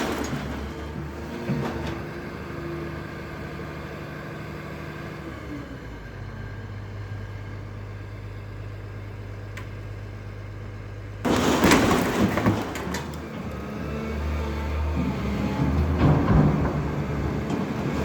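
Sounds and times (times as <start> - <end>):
crashing and clattering: 0.0 - 2.0, 11.3 - 14.4, 15.5 - 18.0
heavy engine humming: 0.0 - 18.0.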